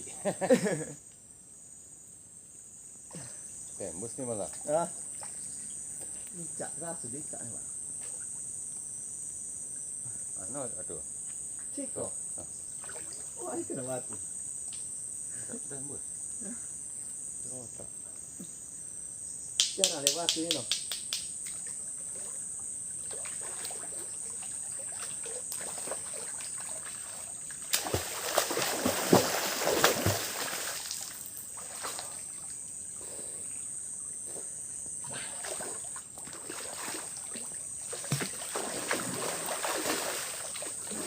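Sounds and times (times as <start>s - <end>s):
insects buzzing: 0.0s - 41.0s
water splashing in a river: 23.0s - 32.6s, 35.3s - 41.0s.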